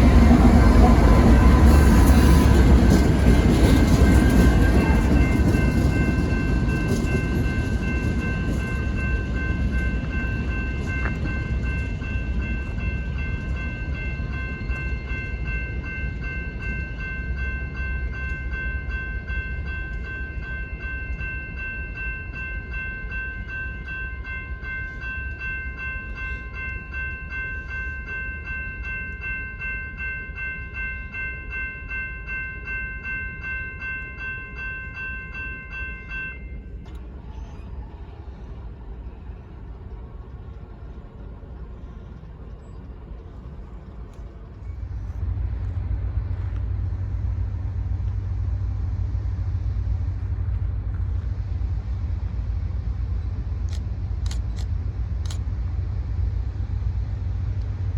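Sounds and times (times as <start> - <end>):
steady high ringing: 0.0 - 40.6
freight train rumbling past: 0.0 - 57.9.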